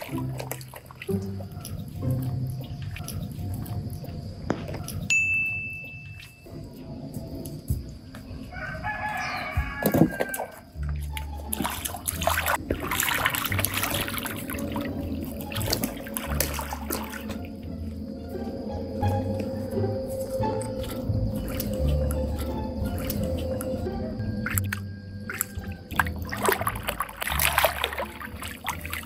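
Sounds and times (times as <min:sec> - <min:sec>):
water sloshing: 0:00.0 - 0:29.0
long layered animal call: 0:12.6 - 0:29.0.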